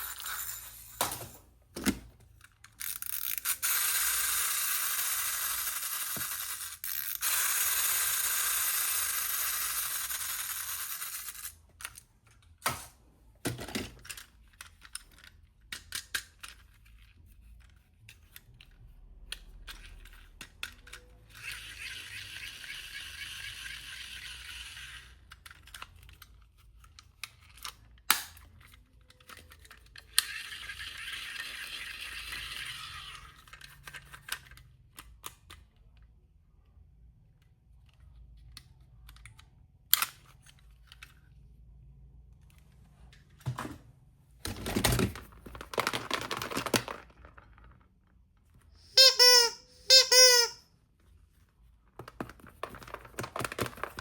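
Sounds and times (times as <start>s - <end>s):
plastic toy pieces clicking: 2.3s - 12.6s, 19.3s - 36.1s
plastic packaging rustling and tearing: 44.5s - 47.7s, 52.2s - 54.0s.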